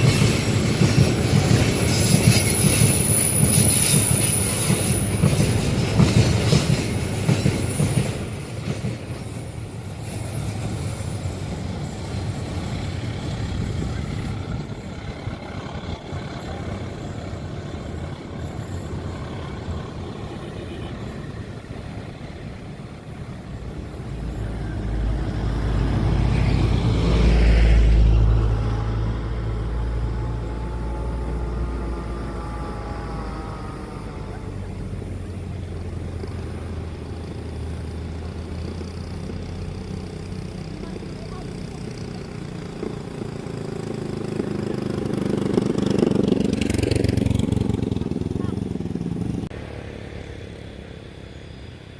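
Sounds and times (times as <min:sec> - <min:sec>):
background traffic: 0:00.0 - 0:51.9
heavy vehicle passing rumble: 0:24.0 - 0:51.9.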